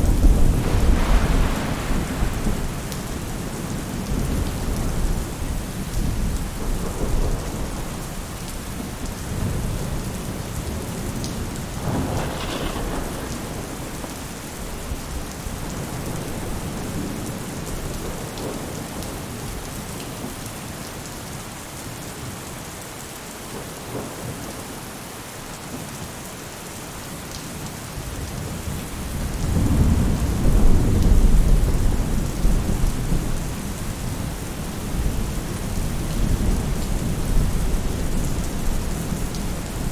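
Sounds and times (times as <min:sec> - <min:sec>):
thunder rumbling: 0:00.0 - 0:19.2, 0:28.9 - 0:39.9
rain on a roof: 0:00.0 - 0:39.9.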